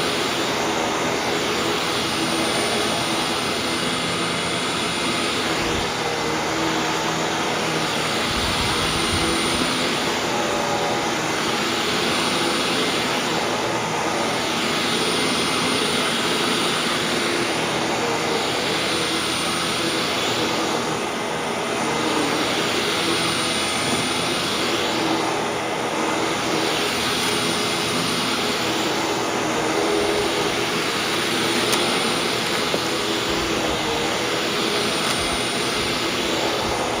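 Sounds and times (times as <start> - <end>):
upright vacuum running on carpet: 0.0 - 37.0
low rumble of vacuum head on rug: 0.5 - 11.2, 19.7 - 37.0.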